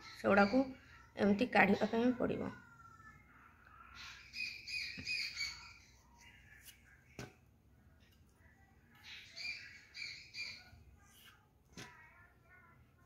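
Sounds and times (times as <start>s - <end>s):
bird chirping: 3.8s - 6.6s, 9.0s - 10.8s.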